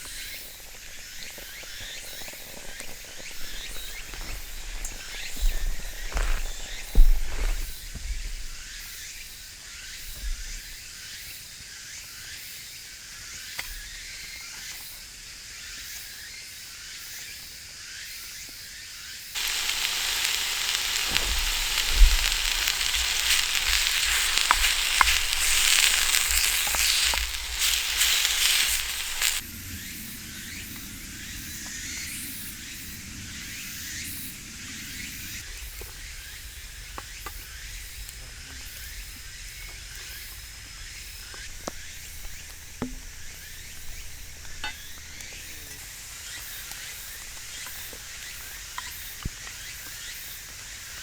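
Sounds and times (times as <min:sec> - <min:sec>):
food sizzling in a pan: 0:00.0 - 0:09.2, 0:19.3 - 0:36.4, 0:37.0 - 0:51.0
sharp pops of frying: 0:19.4 - 0:29.4, 0:40.8 - 0:49.9.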